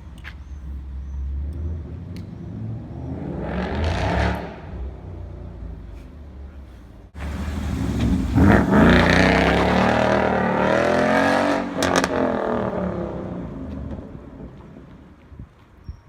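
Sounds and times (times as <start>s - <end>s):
car engine accelerating: 7.2s - 14.0s.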